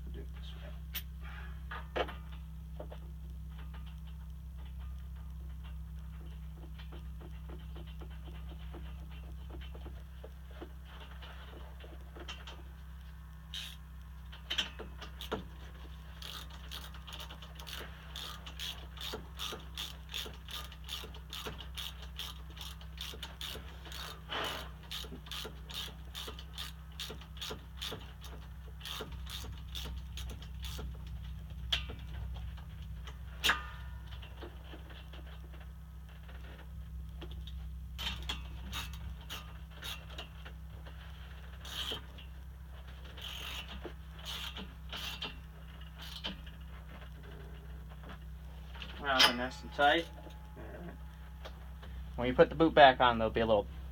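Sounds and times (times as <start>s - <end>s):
ratchet wrench clicking: 13.5s - 13.8s, 14.5s - 15.5s, 16.1s - 31.2s, 38.0s - 40.3s, 41.6s - 42.2s, 43.2s - 46.5s.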